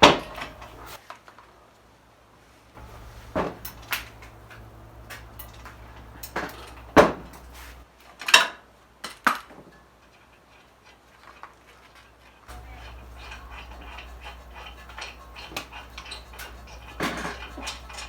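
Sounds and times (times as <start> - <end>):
low steady hum: 0.0 - 1.0, 2.8 - 7.8, 12.5 - 18.0
metal tools clanking on brake caliper: 0.0 - 1.0, 2.8 - 7.8, 12.5 - 18.0.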